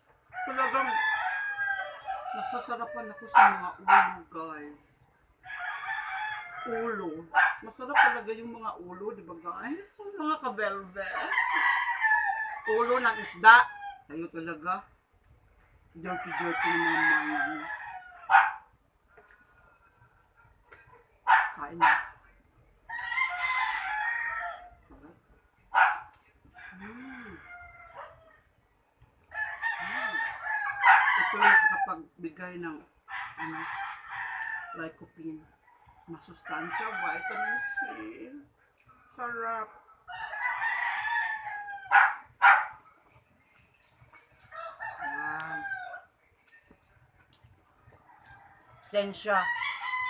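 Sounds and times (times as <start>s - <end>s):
rooster crowing: 0.3s - 3.7s, 5.4s - 7.1s, 11.1s - 14.1s, 16.0s - 18.6s, 22.9s - 24.8s, 26.6s - 28.4s, 29.3s - 32.0s, 33.1s - 34.9s, 35.6s - 38.3s, 40.0s - 42.7s, 44.4s - 46.1s, 48.0s - 50.0s.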